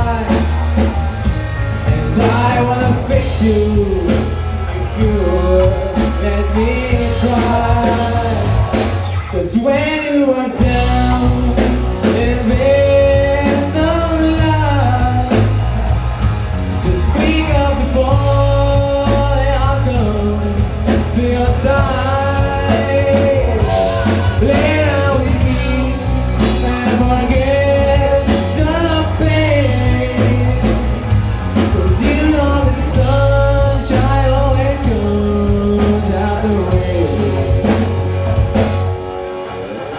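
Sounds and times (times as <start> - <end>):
lead singer singing: 0.0 - 39.9
rock band playing live: 0.0 - 39.9.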